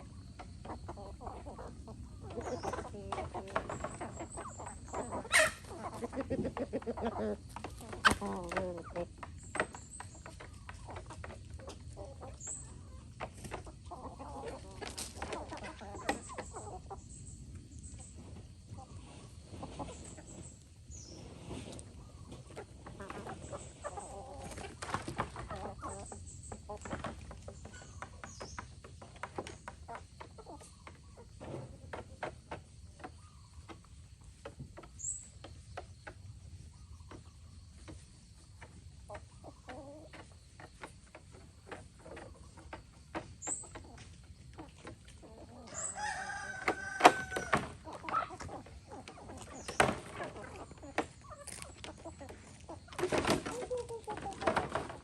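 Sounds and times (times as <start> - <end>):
chickens clucking: 0.0 - 55.0
rooster crowing: 45.7 - 47.7.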